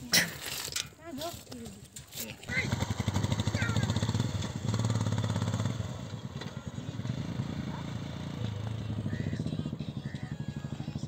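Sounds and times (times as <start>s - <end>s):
motorcycle engine running: 2.5s - 11.0s.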